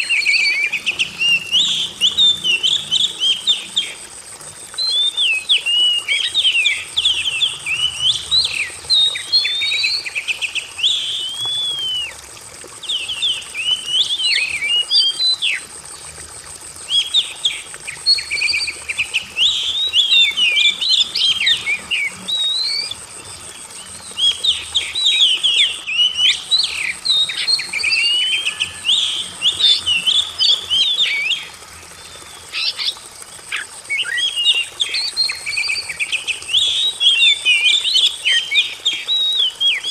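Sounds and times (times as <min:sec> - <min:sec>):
songbird whistling and chattering: 0:04.8 - 0:12.2.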